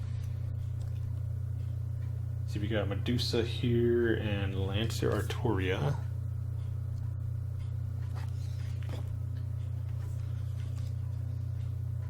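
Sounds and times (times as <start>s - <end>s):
steady low hum: 0.0s - 12.0s
book pages rustling: 5.0s - 5.4s, 8.0s - 11.7s.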